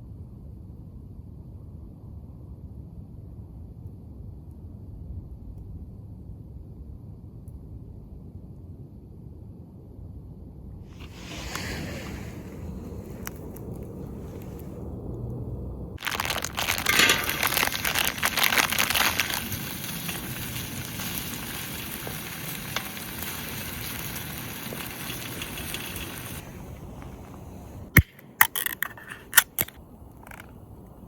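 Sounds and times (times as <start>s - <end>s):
loud crackling sizzle: 11.0s - 28.5s
sharp clicks: 24.9s - 30.5s.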